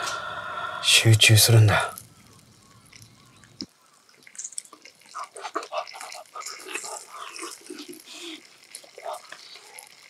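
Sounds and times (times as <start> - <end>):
close-miked chewing and smacking: 1.9 - 10.0.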